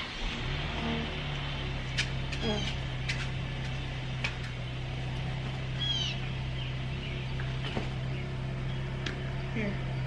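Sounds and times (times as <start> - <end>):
car engine idling: 0.0 - 10.0
high falling chirp: 5.7 - 10.0.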